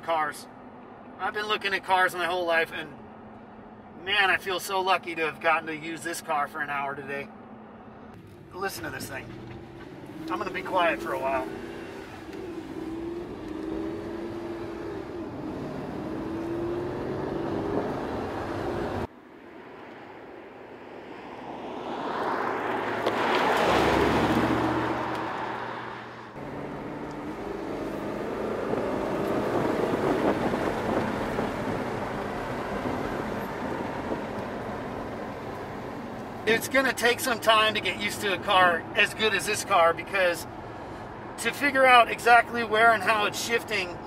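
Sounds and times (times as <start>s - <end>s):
car engine inside cabin: 7.2s - 19.1s, 22.5s - 39.2s
car passing by: 15.6s - 36.4s.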